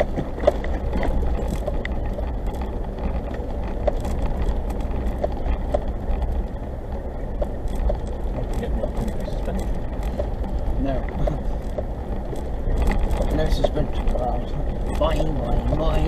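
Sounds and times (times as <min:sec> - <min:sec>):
car driving rumble: 0:00.0 - 0:16.0
small clicks and rattles: 0:00.0 - 0:16.0.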